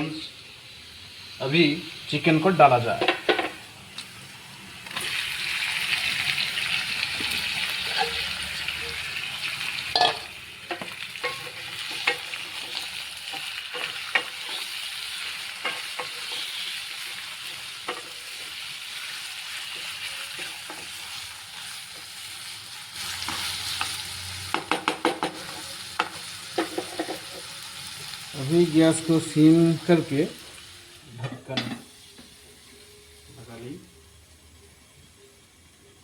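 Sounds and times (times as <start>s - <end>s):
chicken sizzling in a pan: 0.0s - 36.0s
spatula scraping a pan: 7.2s - 9.1s, 10.8s - 18.8s.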